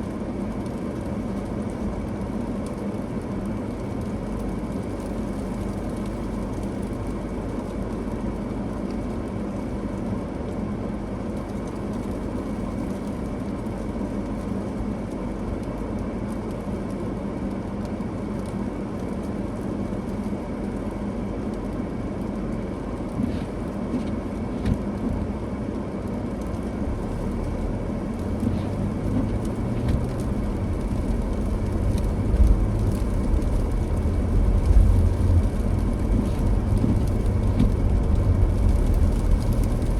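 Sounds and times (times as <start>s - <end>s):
car driving on snowy road: 0.0s - 39.9s
deep rumble: 17.9s - 39.9s.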